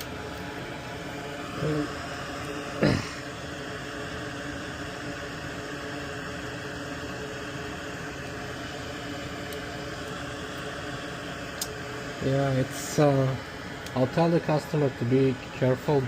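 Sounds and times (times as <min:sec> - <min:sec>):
low equipment hum: 0:00.0 - 0:16.0
steady hiss: 0:00.0 - 0:16.0.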